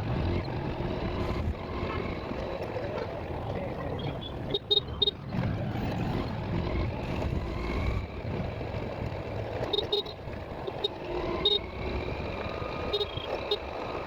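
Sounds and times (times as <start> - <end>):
engine and road rumble: 0.0 - 14.0
short horn beeps: 9.7 - 10.2, 12.9 - 13.6.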